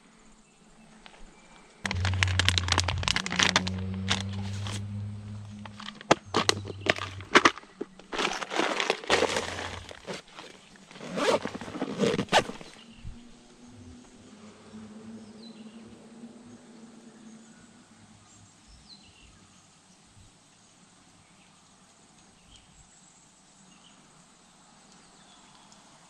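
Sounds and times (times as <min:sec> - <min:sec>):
low steady hum: 0:01.8 - 0:18.4.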